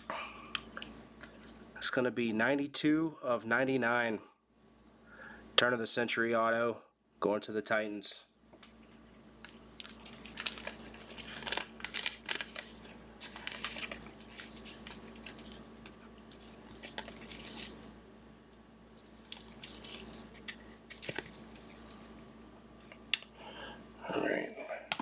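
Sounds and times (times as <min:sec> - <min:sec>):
foil wrappers crinkling: 0:08.9 - 0:18.1, 0:18.8 - 0:23.1
wrapper tearing: 0:09.4 - 0:18.0, 0:18.9 - 0:22.2.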